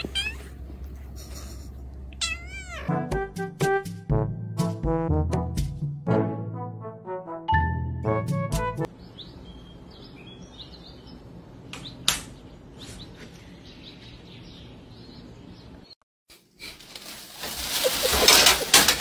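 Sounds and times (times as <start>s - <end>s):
brass music phrase: 3.0s - 8.9s
small birds chirping: 8.9s - 16.0s.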